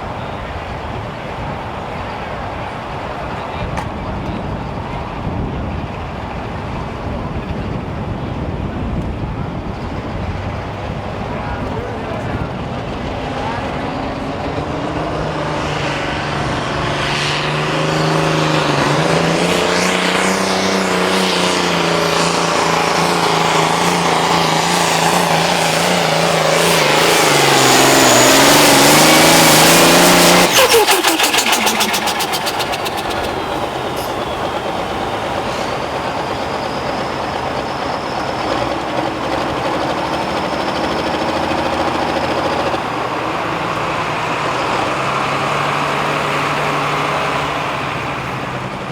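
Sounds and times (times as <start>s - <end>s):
diesel tractor engine running: 0.0s - 48.9s.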